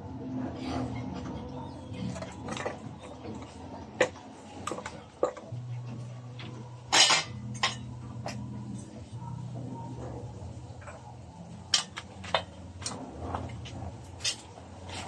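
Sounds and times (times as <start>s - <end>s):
steady low hum: 0.0s - 15.0s
metal tools clinking: 6.9s - 8.5s.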